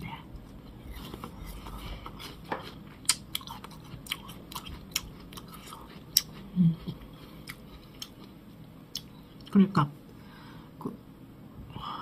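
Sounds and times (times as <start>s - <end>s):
crunchy pear chewing: 0.4s - 9.6s.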